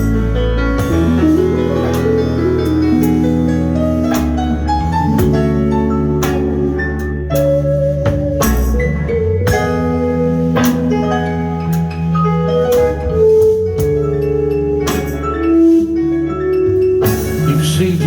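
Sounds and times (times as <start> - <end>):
drum and cymbal strikes: 0.0 - 10.0, 16.7 - 18.0
jazz band playing: 0.0 - 18.0.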